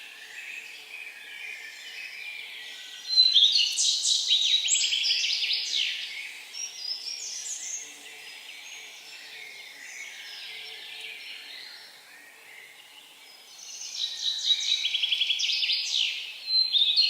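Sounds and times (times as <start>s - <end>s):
songbird singing trills: 0.0s - 17.0s.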